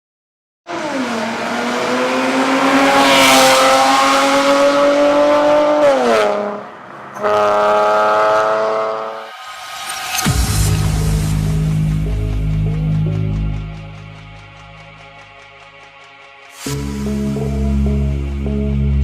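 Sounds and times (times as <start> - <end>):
car engine revving: 0.7 - 14.8.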